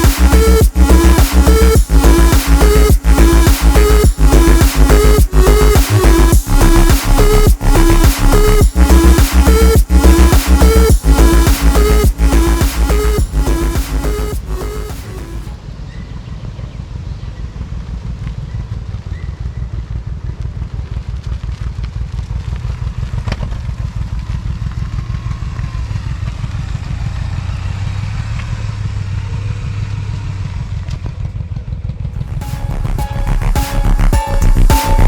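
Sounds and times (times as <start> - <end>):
motorcycle engine running: 0.0 - 15.4, 17.6 - 35.0
music: 0.0 - 15.6, 32.3 - 35.0.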